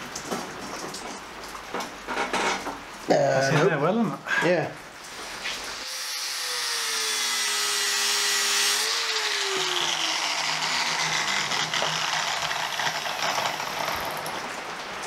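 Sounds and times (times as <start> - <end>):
angle grinder grinding steel: 5.8 - 14.4.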